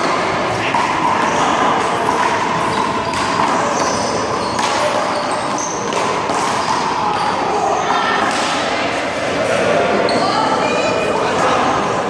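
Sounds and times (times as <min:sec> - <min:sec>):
handball slapping wall and pavement: 0:00.0 - 0:07.2.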